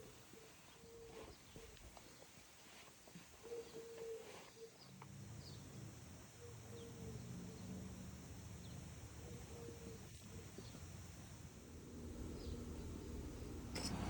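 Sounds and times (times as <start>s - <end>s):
bird cooing: 3.4s - 5.7s, 6.4s - 7.8s, 9.2s - 10.9s
low steady hum: 4.8s - 14.0s.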